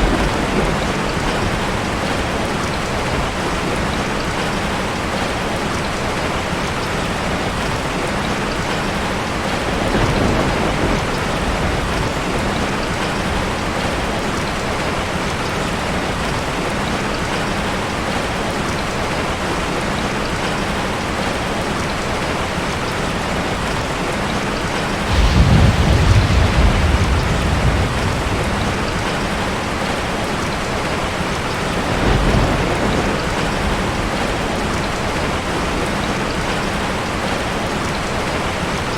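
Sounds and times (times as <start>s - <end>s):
low thunder rolls: 0.0s - 4.5s, 9.7s - 14.1s, 25.0s - 36.6s
steady rain: 0.0s - 38.9s.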